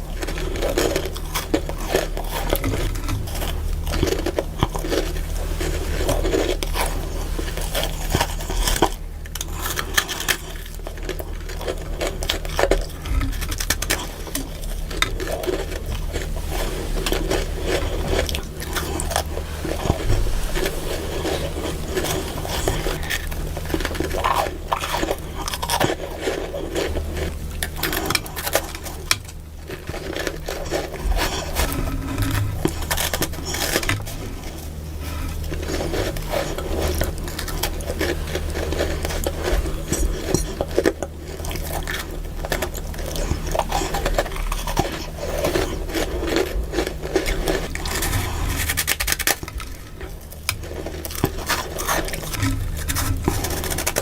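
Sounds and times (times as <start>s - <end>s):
chewing crunchy frost: 0.0s - 54.0s.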